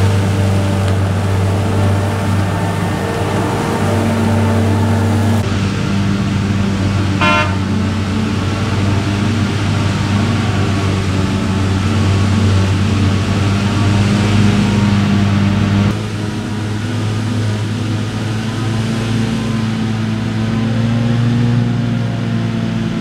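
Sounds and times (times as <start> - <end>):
diesel engine running steadily: 0.0 - 23.0
short horn toot: 7.2 - 7.8.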